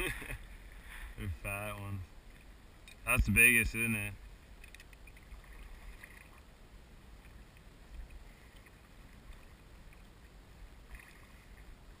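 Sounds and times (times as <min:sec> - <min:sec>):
water lapping against hull: 0:04.2 - 0:12.0.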